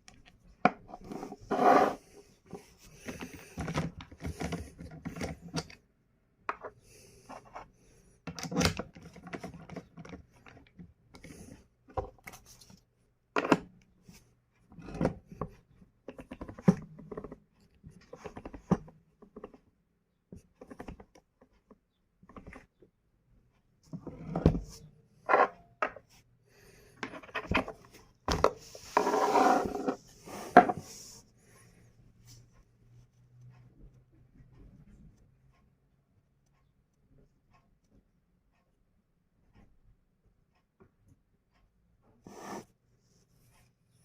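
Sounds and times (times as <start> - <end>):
clicks knocks and scraping: 27.0 - 31.0.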